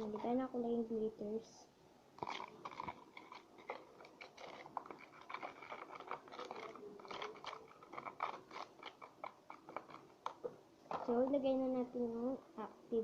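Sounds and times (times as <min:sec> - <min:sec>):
spoon stirring sticky glue: 0:00.0 - 0:00.7, 0:02.2 - 0:11.5.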